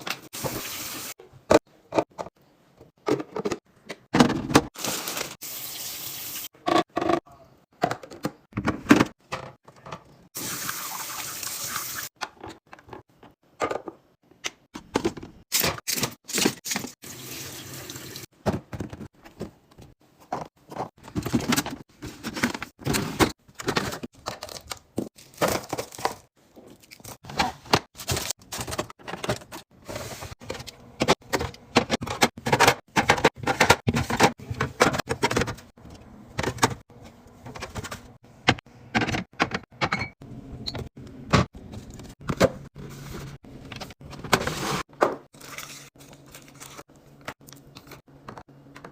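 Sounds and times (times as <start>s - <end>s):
kitchen tap running: 17.0s - 18.2s.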